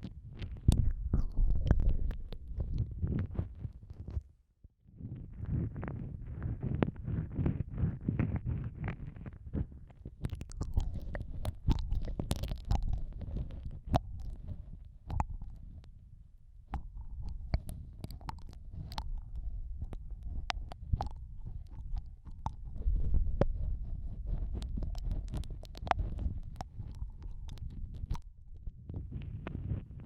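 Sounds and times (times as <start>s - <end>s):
wet mouth clicks and licking: 0.4s - 2.9s, 10.2s - 15.9s, 16.7s - 28.3s
low muffled rumble: 5.0s - 30.0s.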